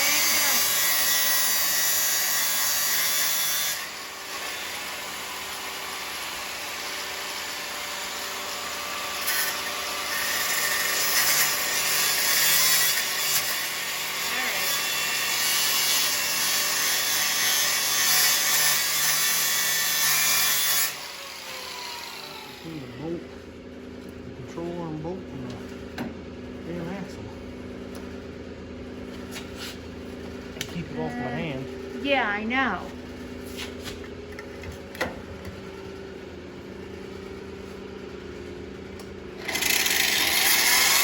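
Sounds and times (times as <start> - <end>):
power saw cutting metal: 0.0 - 23.2, 39.4 - 41.0.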